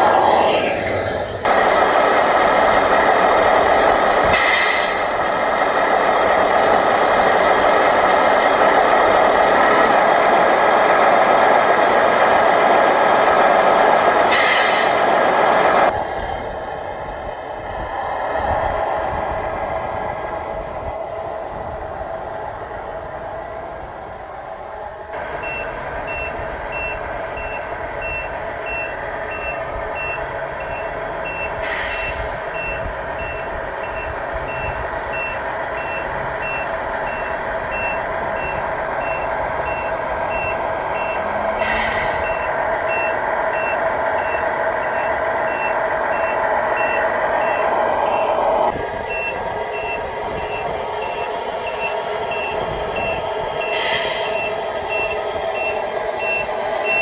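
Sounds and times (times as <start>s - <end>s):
engine drone: 0.0s - 57.0s
truck back-up alarm beeping: 25.3s - 57.0s.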